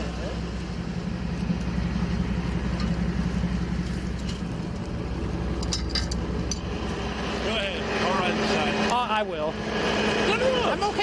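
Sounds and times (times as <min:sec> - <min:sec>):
tractor engine idling: 0:00.0 - 0:11.0.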